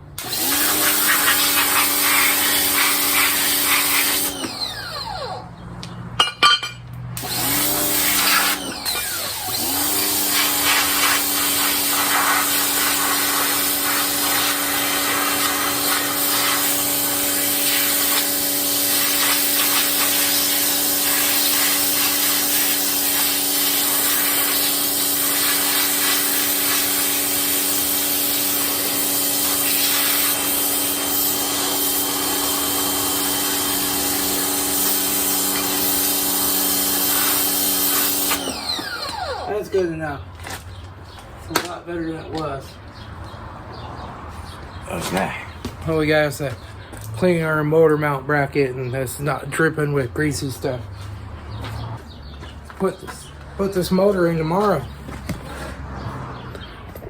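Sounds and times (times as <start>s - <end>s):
pressure washer motor hum: 0.2s - 5.6s, 6.2s - 39.9s
water spray hiss: 21.0s - 32.7s.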